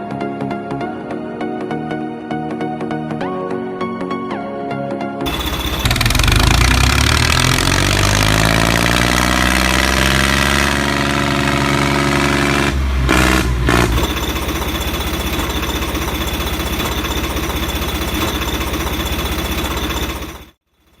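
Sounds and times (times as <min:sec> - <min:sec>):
engine running rough chugging: 0:05.3 - 0:21.0.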